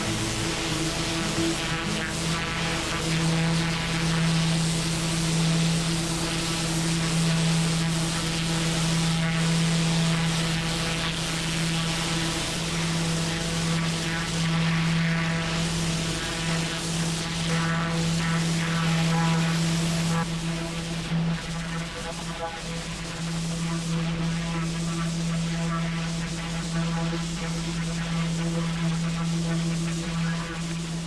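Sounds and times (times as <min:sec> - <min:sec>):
pressure washer engine drone: 0:00.0 - 0:20.2
water jet hissing on paving: 0:00.0 - 0:28.6.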